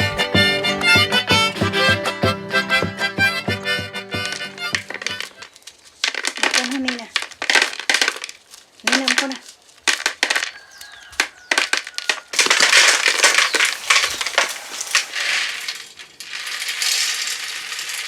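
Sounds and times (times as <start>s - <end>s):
rough crunching and scraping: 4.1s - 18.0s
utensils clicking and knocking: 4.2s - 10.5s.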